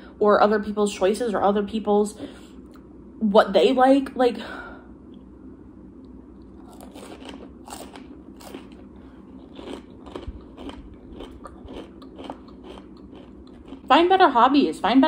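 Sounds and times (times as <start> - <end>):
crunching fried food: 6.4 - 13.9.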